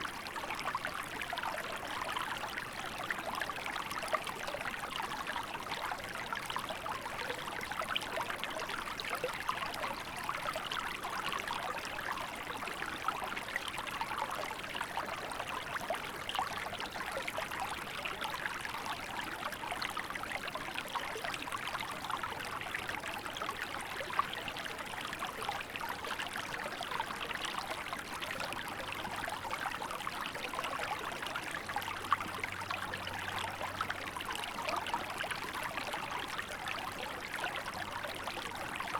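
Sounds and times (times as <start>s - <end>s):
river water babbling: 25.9s - 38.9s.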